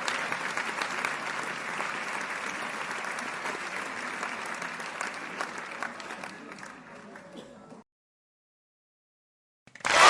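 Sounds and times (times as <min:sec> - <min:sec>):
crowd applause: 0:00.0 - 0:07.2, 0:09.7 - 0:10.0.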